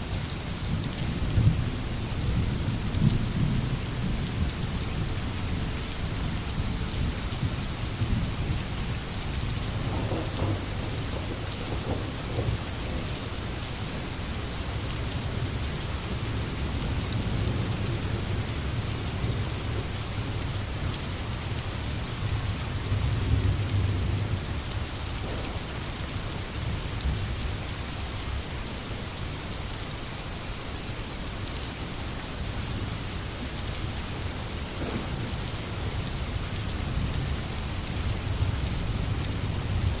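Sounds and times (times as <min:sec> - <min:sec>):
heavy rain hissing: 0:04.8 - 0:40.0
low rolling thunder: 0:09.4 - 0:13.8, 0:22.4 - 0:27.4, 0:34.7 - 0:37.4.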